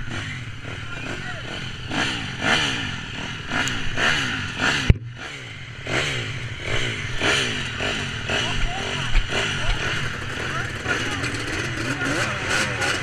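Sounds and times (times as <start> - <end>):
motorbike engines idling and revving: 0.0 - 13.0.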